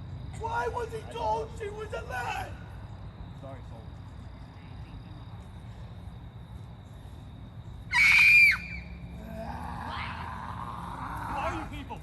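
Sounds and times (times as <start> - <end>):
short high-pitched scream: 7.9 - 8.9.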